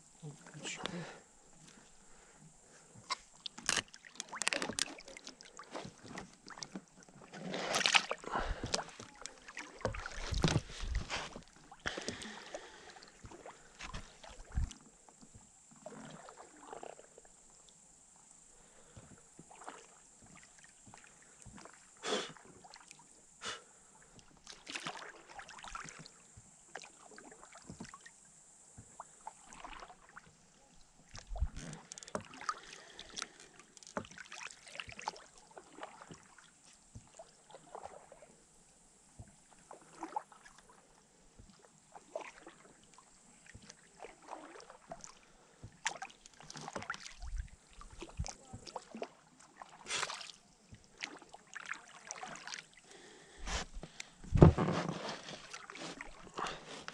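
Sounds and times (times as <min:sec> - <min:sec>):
water splashes and drips: 0:03.0 - 0:17.7, 0:18.6 - 0:21.8, 0:24.2 - 0:28.1, 0:28.8 - 0:30.3, 0:31.1 - 0:38.2, 0:39.2 - 0:40.8, 0:41.4 - 0:54.5
knocks on rowboat: 0:54.3 - 0:55.0.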